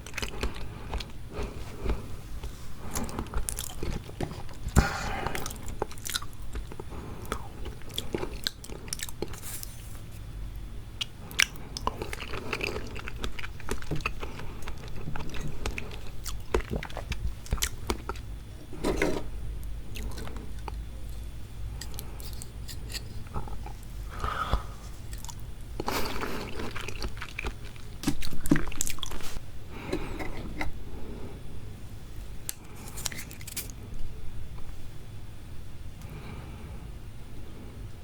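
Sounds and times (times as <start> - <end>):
chewing raw seafood: 0.0 - 9.4, 11.0 - 19.2, 19.9 - 30.8.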